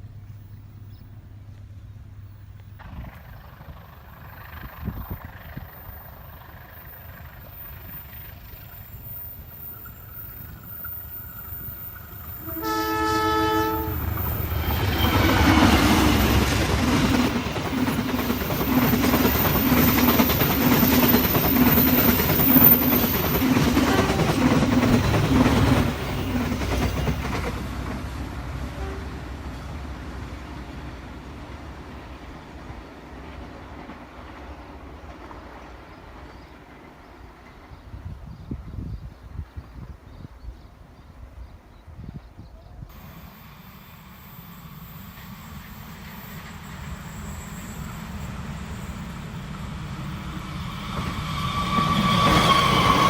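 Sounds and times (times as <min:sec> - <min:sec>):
train horn blast: 0:12.3 - 0:16.4, 0:23.8 - 0:24.5, 0:28.6 - 0:29.5
train wheels clicking over rail joints: 0:13.9 - 0:28.3.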